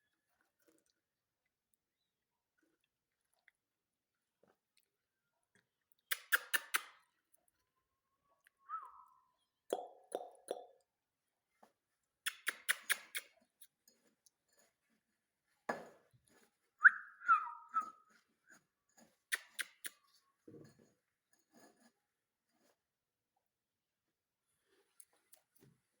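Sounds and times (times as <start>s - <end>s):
sharp clicks: 12.3s - 13.3s
parakeet whistle: 16.8s - 17.9s.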